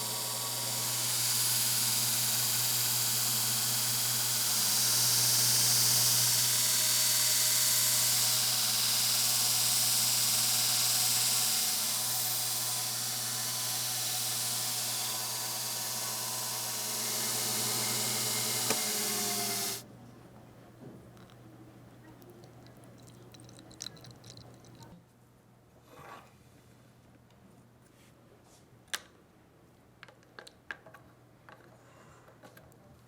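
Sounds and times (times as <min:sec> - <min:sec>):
electric motor hum: 0:00.0 - 0:19.8.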